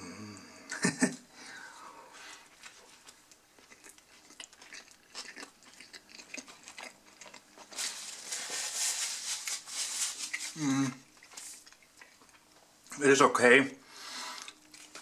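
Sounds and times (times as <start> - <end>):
man chewing: 2.2 - 12.9, 14.0 - 15.0
paper and cardboard rustling: 7.6 - 10.6.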